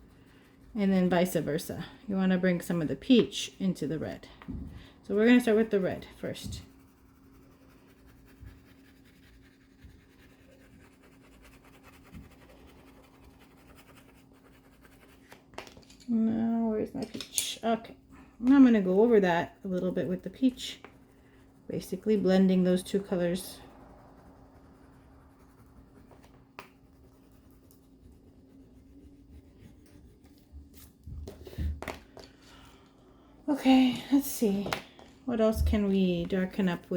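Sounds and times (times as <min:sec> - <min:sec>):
low steady hum: 0:00.0 - 0:36.9
crayon scratching on paper: 0:05.1 - 0:15.3, 0:18.5 - 0:31.6, 0:35.4 - 0:36.9.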